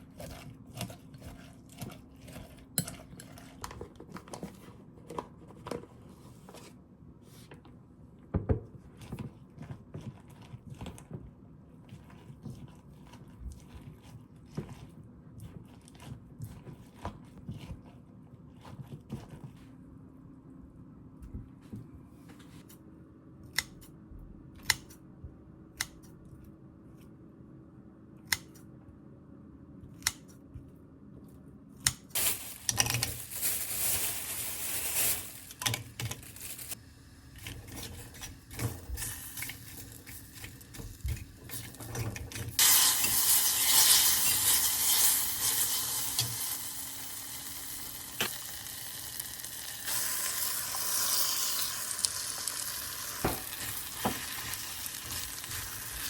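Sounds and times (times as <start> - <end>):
stirring and scraping: 0.0 - 6.8, 8.7 - 19.9, 51.8 - 56.0
food frying in a pan: 42.6 - 56.0.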